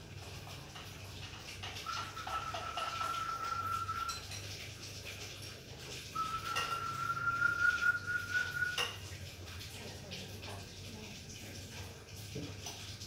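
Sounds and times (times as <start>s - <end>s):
high steady whistle: 1.9s - 4.2s, 6.2s - 8.9s.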